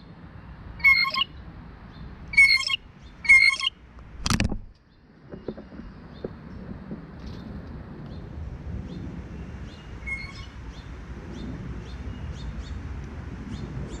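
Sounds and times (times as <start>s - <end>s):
small birds chirping: 0.0s - 3.7s, 8.9s - 12.9s
low outdoor rumble: 0.0s - 14.0s.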